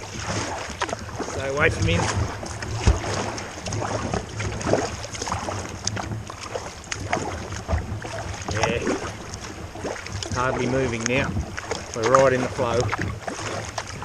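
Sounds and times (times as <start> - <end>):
kayak paddle splashing: 0.0 - 14.0
water rushing against hull: 0.0 - 14.0
wind rumble on microphone: 0.0 - 14.0.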